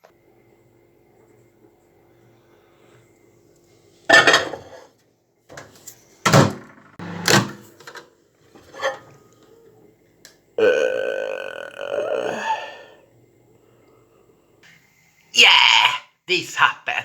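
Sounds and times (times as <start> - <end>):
faint steady hum: 0.0 - 7.2, 7.8 - 17.0
microwave door and dish bumps: 4.1 - 4.7, 6.3 - 8.0.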